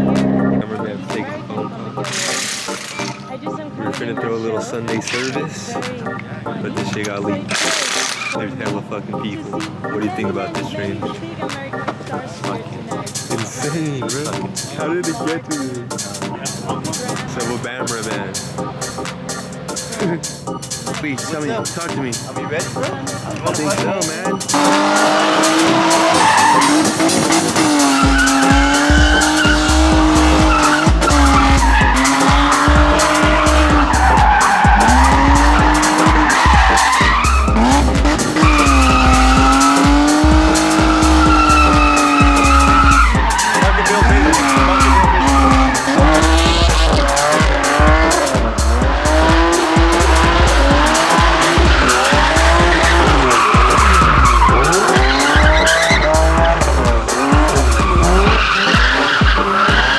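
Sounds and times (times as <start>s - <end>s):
music with heavy bass beat: 0.0s - 0.6s, 12.5s - 59.9s
car engines revving: 0.0s - 59.9s
tyres screeching: 0.0s - 59.9s.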